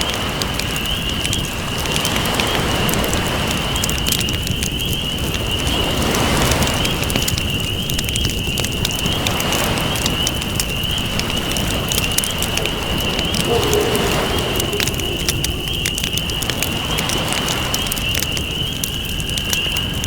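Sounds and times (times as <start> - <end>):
campfire crackling and popping: 0.0 - 20.0
ocean waves: 11.0 - 18.3.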